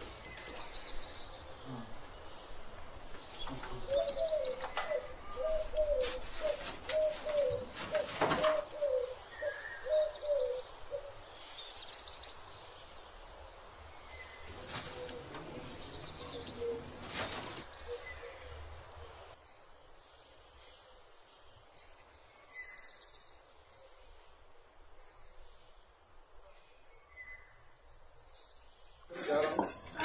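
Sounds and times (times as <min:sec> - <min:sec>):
birds cooing: 0:03.4 - 0:11.2, 0:14.5 - 0:18.6
handling rustles: 0:04.4 - 0:08.8, 0:14.5 - 0:17.7, 0:29.1 - 0:30.0.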